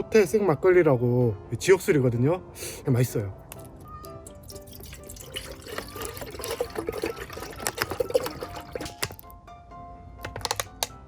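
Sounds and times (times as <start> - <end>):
background music: 0.0 - 11.0
liquid gurgling into cup: 4.2 - 9.3.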